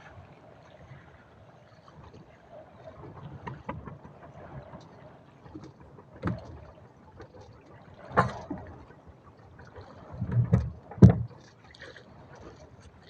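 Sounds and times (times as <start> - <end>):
dull knocks on a boat: 10.3 - 11.3.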